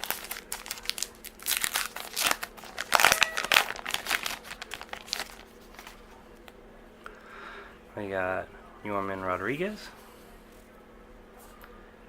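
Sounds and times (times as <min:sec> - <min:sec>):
wrapper crinkling and tearing: 0:00.0 - 0:06.1.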